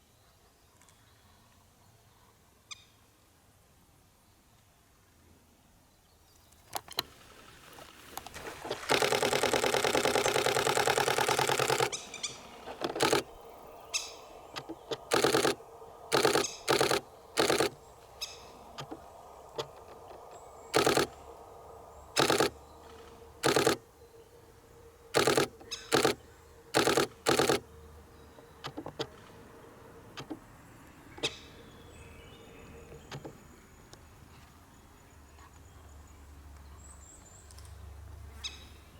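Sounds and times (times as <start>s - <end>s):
camera shutter firing in bursts: 8.7s - 13.4s, 14.0s - 19.0s, 20.7s - 21.3s, 22.2s - 22.6s, 23.4s - 23.8s, 25.2s - 26.2s, 26.8s - 27.7s.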